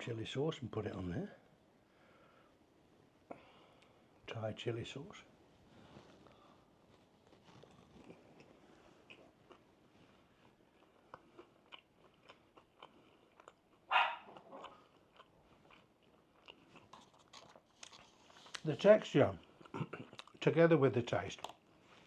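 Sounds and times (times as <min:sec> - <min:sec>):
chewing crunches: 0:07.2 - 0:18.7, 0:19.3 - 0:20.5, 0:21.3 - 0:21.7.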